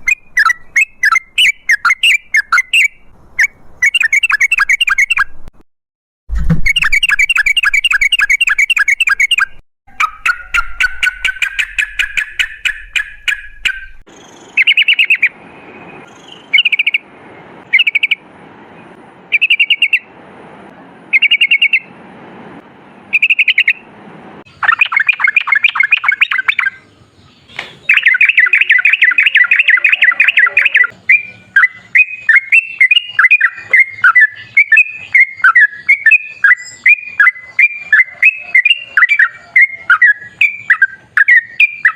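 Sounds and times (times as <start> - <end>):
bulbul singing chattering trills: 6.7 - 17.0, 24.5 - 41.9.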